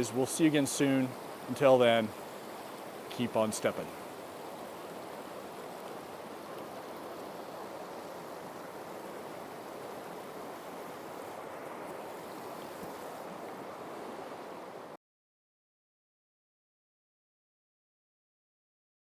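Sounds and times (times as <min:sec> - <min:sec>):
mountain creek rushing: 0:00.0 - 0:15.0.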